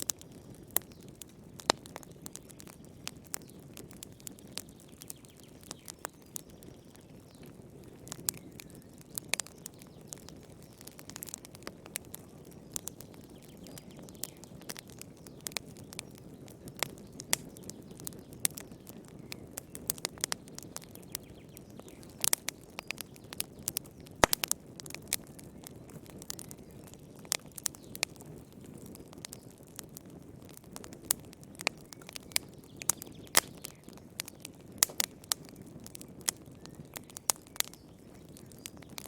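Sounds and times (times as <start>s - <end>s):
low rush of flames: 0.0s - 39.0s
wood fire crackling: 0.0s - 39.0s.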